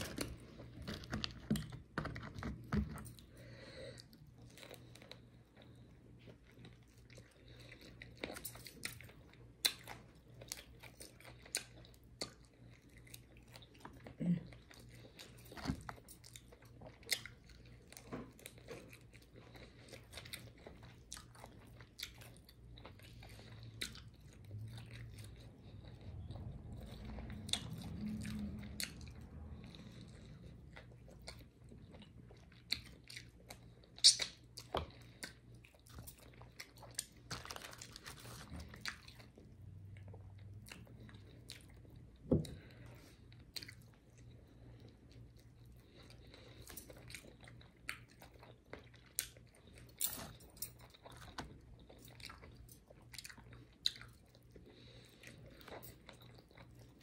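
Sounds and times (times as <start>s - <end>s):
chewing crisp fried chicken: 0.0s - 57.0s
sharp mouth clicks: 34.0s - 34.4s.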